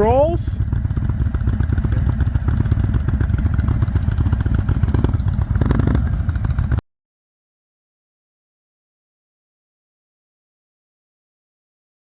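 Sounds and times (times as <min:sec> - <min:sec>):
motorcycle engine idling: 0:00.0 - 0:06.8.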